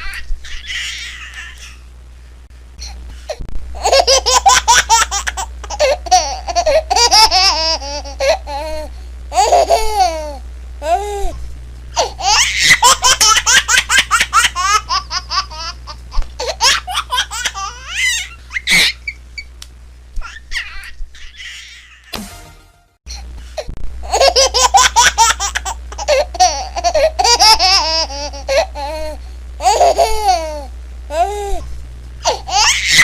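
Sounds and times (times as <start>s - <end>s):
baby laughing: 0.0s - 1.8s, 3.8s - 11.0s, 12.0s - 19.2s, 20.2s - 22.1s, 24.0s - 31.3s, 32.2s - 33.0s.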